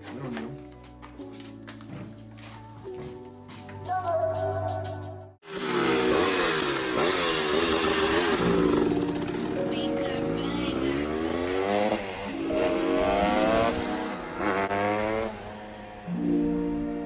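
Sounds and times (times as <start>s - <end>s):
motorcycle engine revving: 5.4s - 16.1s.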